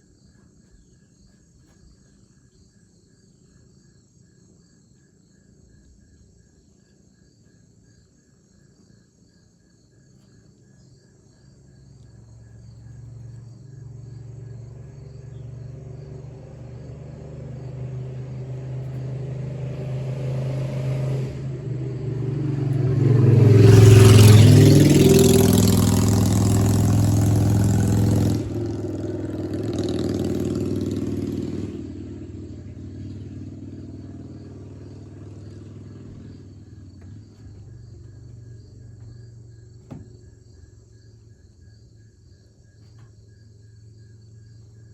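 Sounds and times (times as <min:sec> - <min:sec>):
vehicle engine passing: 0:11.7 - 0:41.4.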